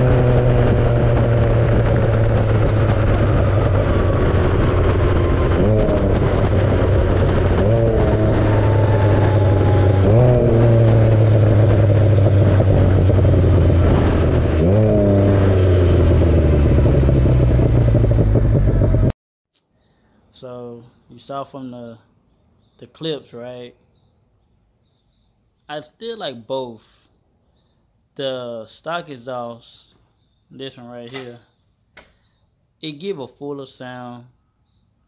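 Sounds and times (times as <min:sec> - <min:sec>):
engine revving: 0:00.0 - 0:19.2.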